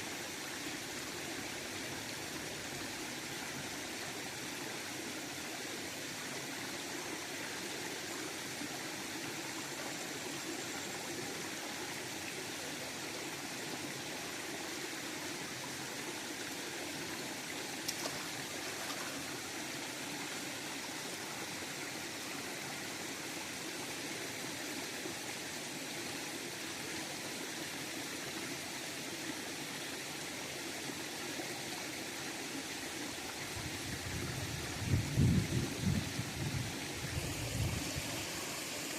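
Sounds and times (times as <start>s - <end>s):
river water rushing: 8.0s - 25.7s, 36.8s - 38.9s.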